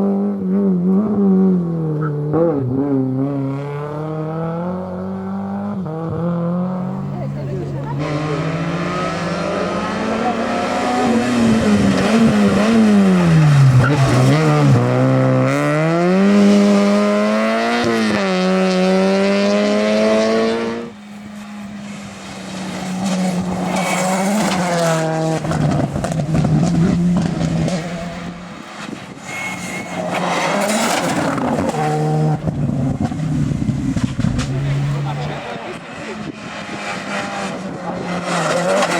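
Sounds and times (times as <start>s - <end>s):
rally car engines revving: 0.0s - 38.9s
tyre squeal: 29.1s - 31.9s.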